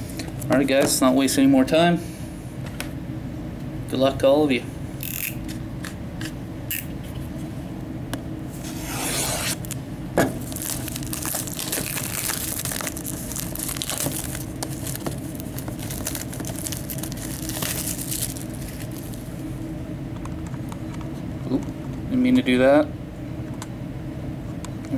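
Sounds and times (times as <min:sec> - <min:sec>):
plastic shrink-wrap crinkling: 0:10.4 - 0:19.3.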